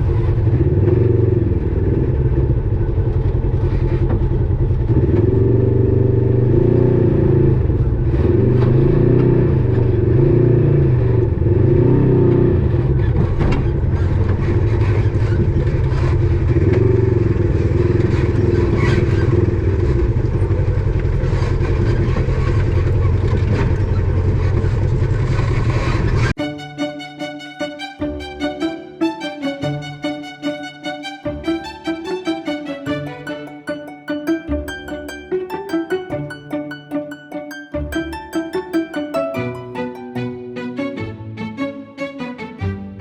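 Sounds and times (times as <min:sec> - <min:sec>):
off-road vehicle engine revving: 0:00.0 - 0:26.4.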